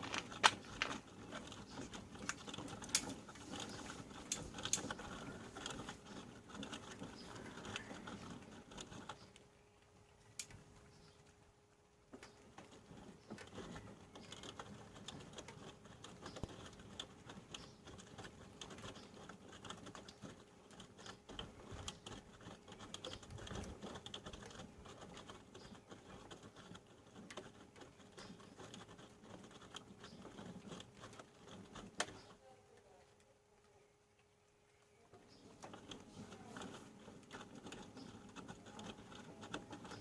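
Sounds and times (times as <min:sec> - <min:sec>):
wet laundry pattering in drum: 0:00.0 - 0:09.3.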